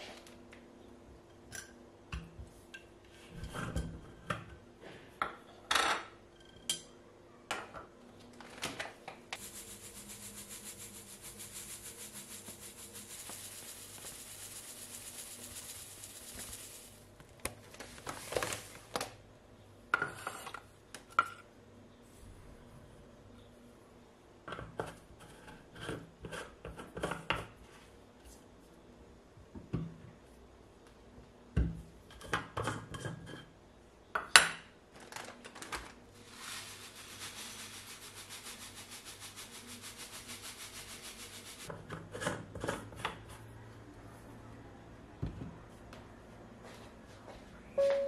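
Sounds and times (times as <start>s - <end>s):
rubbing or scraping strokes: 9.4s - 17.0s, 36.2s - 41.7s.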